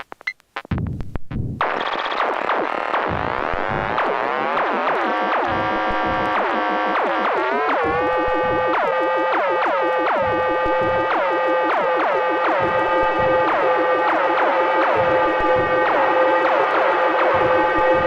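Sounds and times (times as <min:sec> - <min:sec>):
kick drum thumps: 0:00.7 - 0:01.7, 0:03.0 - 0:04.1, 0:05.4 - 0:06.2, 0:10.2 - 0:11.1, 0:12.5 - 0:18.0
pitched electronic drum hits: 0:00.7 - 0:18.0.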